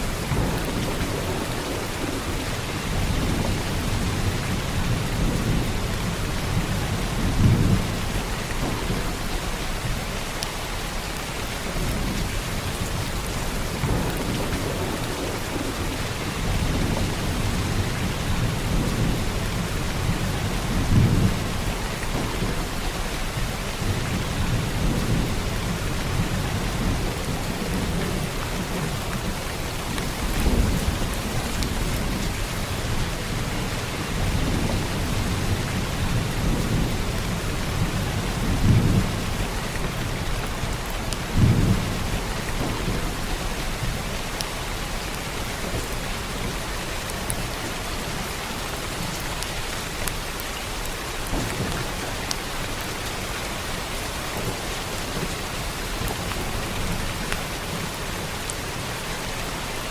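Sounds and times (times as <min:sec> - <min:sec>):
low rolls of thunder: 0:00.0 - 0:10.2, 0:11.6 - 0:48.3
heavy rain falling: 0:00.0 - 0:59.9.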